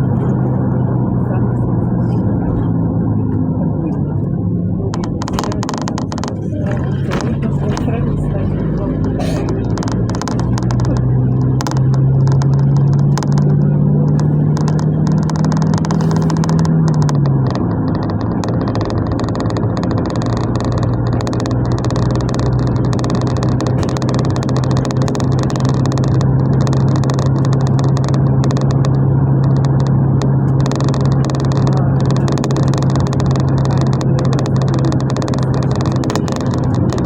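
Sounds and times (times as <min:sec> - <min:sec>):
minibus engine drone: 0:00.0 - 0:37.0
road and tyre noise: 0:00.0 - 0:37.0.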